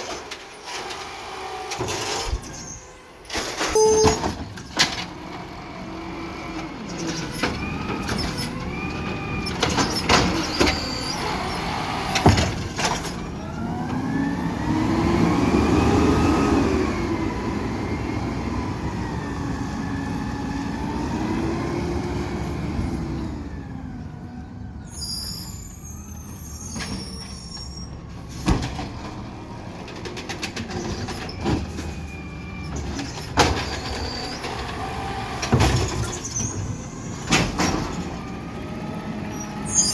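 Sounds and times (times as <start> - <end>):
garbage truck engine and hydraulics: 0.0 - 39.9
knocks and clanks: 12.1 - 13.3.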